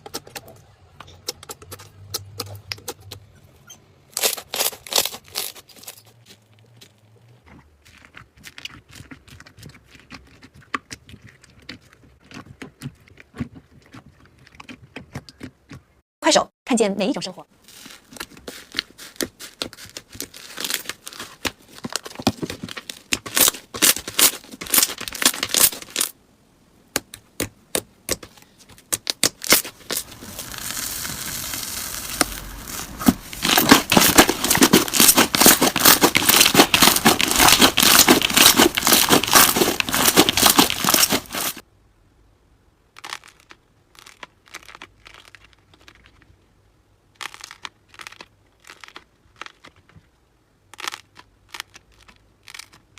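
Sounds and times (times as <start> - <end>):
slime crackling and popping: 4.2 - 6.4, 17.7 - 26.2, 28.9 - 41.6, 43.0 - 46.3, 47.2 - 49.8, 50.8 - 52.9.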